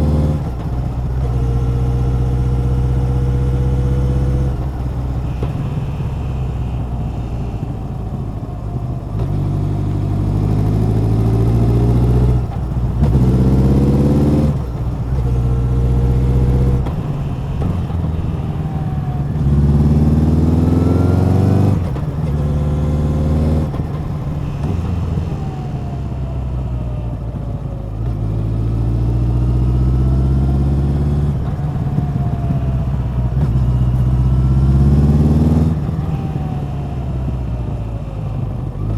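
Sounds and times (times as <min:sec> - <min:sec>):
motorcycle exhaust revving: 0:00.0 - 0:27.3.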